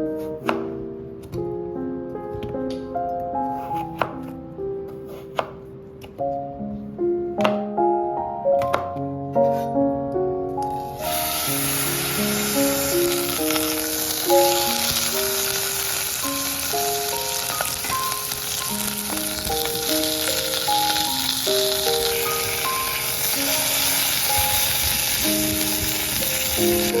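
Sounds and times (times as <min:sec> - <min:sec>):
soft background music: 0:00.0 - 0:27.0
food sizzling in frying pan: 0:10.8 - 0:27.0.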